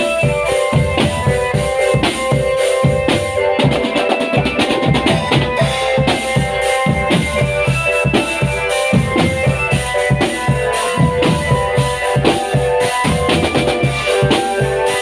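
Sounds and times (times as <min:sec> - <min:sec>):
held melodic notes: 0:00.0 - 0:15.0
marching drum band playing: 0:00.0 - 0:15.0.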